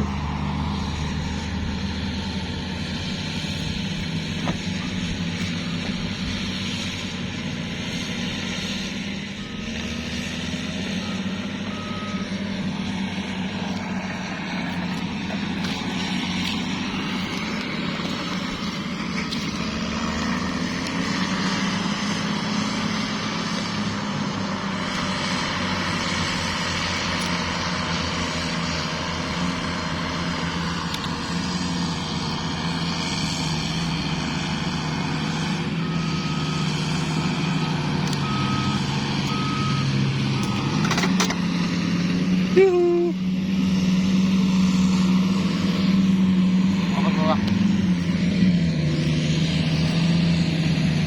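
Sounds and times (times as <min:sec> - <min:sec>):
heavy vehicle engine running: 0:00.0 - 0:51.0
reversing alarm beeping: 0:08.5 - 0:24.0, 0:32.6 - 0:41.2.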